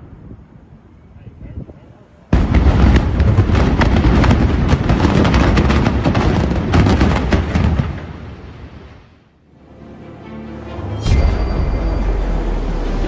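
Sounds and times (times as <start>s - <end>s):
rapid crackling cracks: 2.4s - 8.1s.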